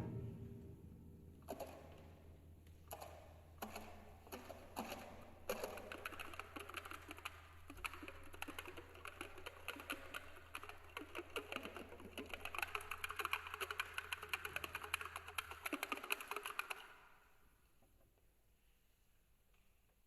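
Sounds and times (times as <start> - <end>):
chamber music: 0.0 - 2.5.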